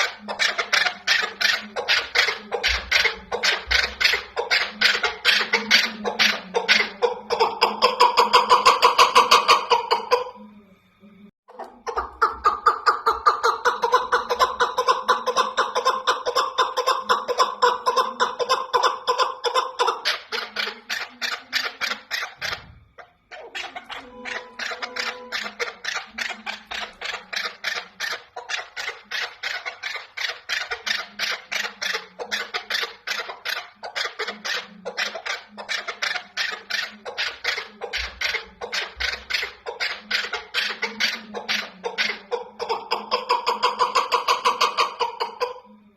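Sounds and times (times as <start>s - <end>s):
partridge rapid clucking: 0.0s - 10.4s, 11.5s - 45.8s.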